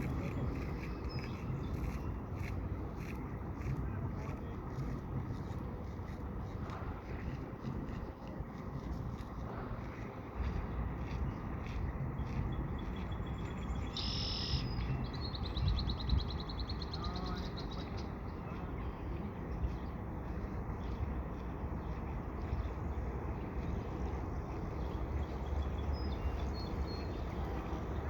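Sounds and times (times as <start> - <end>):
steady low rumble: 0.0 - 28.0
songbird calling and trilling: 12.4 - 20.0.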